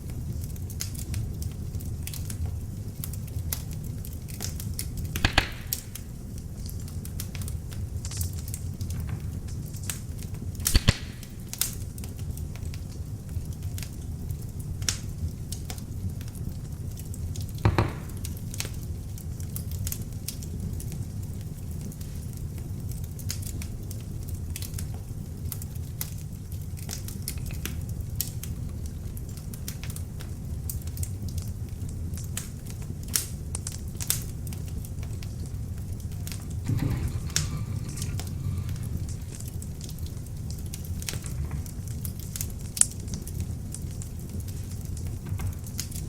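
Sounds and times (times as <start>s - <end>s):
log fire crackling: 0.0s - 46.0s
fire popping loudly: 0.7s - 14.3s, 16.1s - 19.7s, 33.1s - 46.0s.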